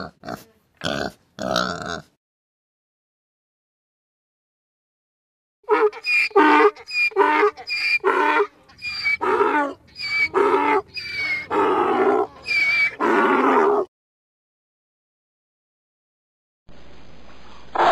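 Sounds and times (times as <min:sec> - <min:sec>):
donkey braying: 0:05.7 - 0:13.9.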